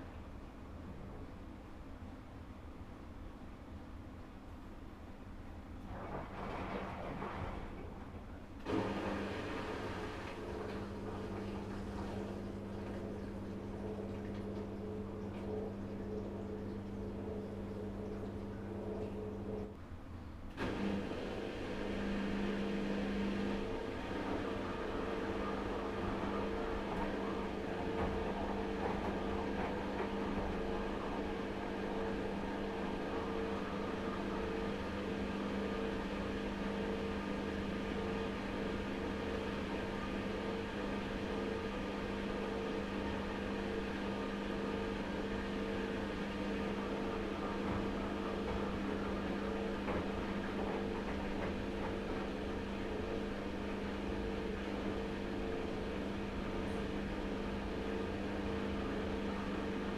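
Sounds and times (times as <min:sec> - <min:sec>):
washing machine motor hum: 0:00.0 - 0:59.9.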